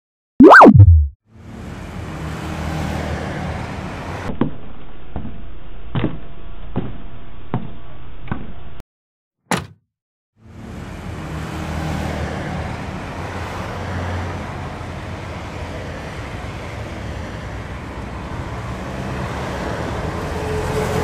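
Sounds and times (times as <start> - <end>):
swoop sound effect: 0.4 - 1.1.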